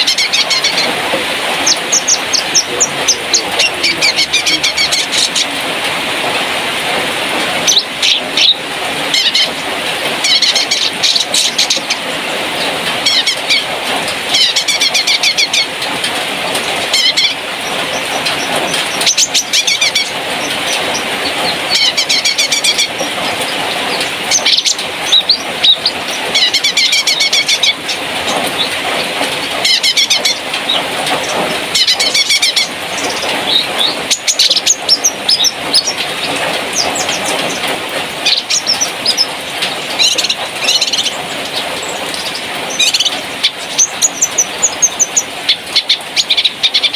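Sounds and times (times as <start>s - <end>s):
songbird trilling: 0.0s - 0.9s, 1.5s - 5.6s, 7.6s - 9.5s, 16.9s - 28.8s, 38.2s - 46.9s
background bird chirping: 1.5s - 5.7s, 16.6s - 46.9s.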